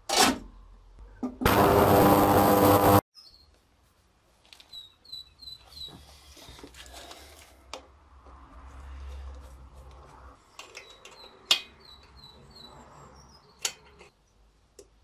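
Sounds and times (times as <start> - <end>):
ultrasonic cleaner buzzing hiss: 1.5 - 3.0
faint bird chirps: 3.2 - 3.6, 4.6 - 6.2.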